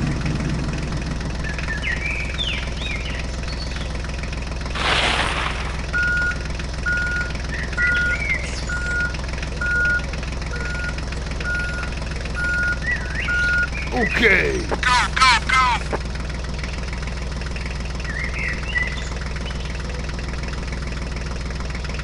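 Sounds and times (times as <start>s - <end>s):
tractor engine running: 0.0s - 22.0s
bird-like chirps: 1.4s - 4.0s, 7.4s - 9.1s, 12.6s - 14.0s, 17.6s - 20.0s
reversing alarm beeping: 5.9s - 13.8s.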